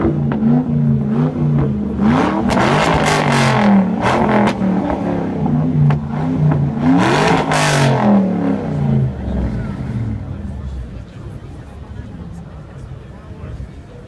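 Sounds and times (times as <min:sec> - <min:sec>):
car engine revving: 0:00.0 - 0:12.3.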